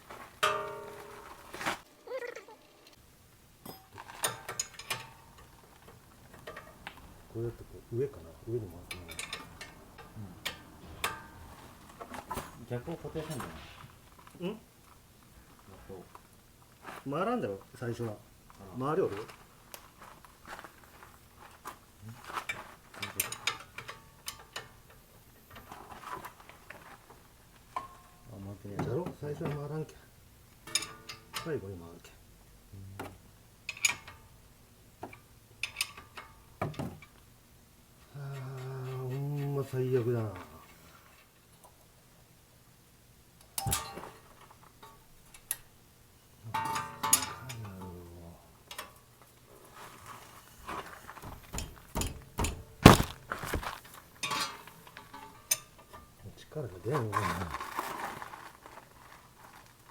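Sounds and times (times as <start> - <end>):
tools clicking and knocking on metal: 0.4 - 1.3, 3.6 - 7.4, 8.3 - 13.7, 22.3 - 26.8, 30.6 - 31.6, 33.0 - 34.3, 35.0 - 37.2, 43.5 - 45.7, 46.5 - 47.9, 48.7 - 49.0, 51.1 - 56.1
ringing metallic clatter: 0.4 - 1.5, 8.8 - 13.9.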